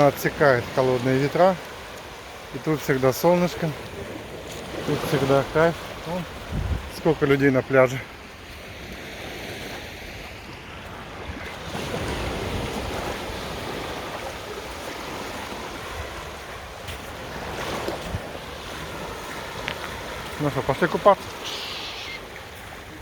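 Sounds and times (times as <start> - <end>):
waves breaking on a beach: 0.0 - 23.0
wind on the microphone: 6.3 - 7.1, 10.4 - 19.0.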